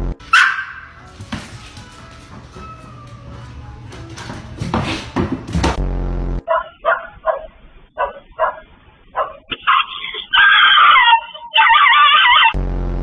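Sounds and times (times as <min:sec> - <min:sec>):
dog wavering cry: 0:00.2 - 0:01.1, 0:09.2 - 0:12.6
dog barking: 0:00.2 - 0:01.9, 0:06.5 - 0:12.5.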